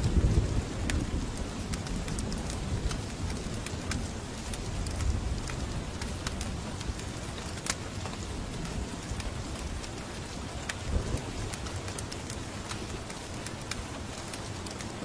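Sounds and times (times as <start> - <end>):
fire crackling: 0.0 - 15.0
steady rain: 0.0 - 15.0.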